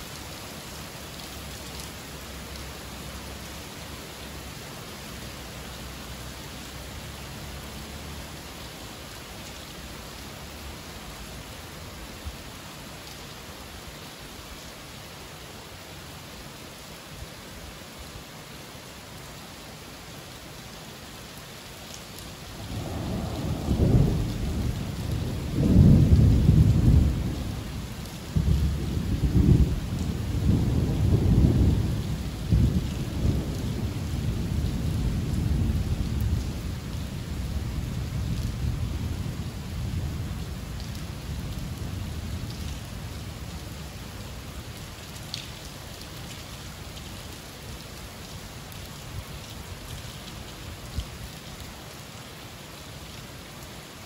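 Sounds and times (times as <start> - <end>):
rain hissing down: 0.0 - 54.0
thunder rumbling: 22.6 - 42.7.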